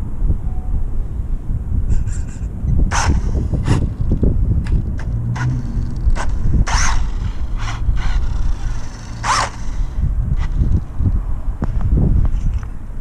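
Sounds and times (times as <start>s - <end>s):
wind noise on microphone: 0.0s - 13.0s
short scraping rushes: 1.9s - 11.0s
toy truck motor hum: 2.1s - 4.1s, 4.7s - 10.9s.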